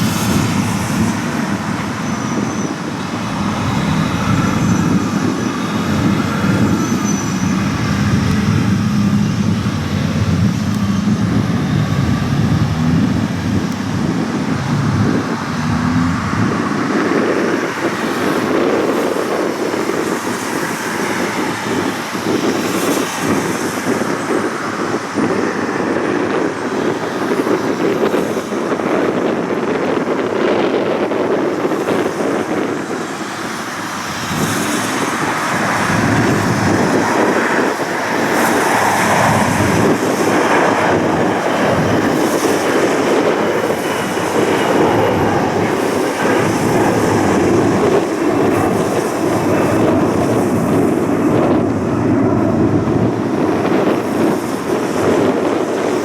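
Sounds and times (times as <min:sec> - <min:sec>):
heavy low rumble: 0:00.0 - 0:17.2
traffic noise: 0:00.0 - 0:56.0.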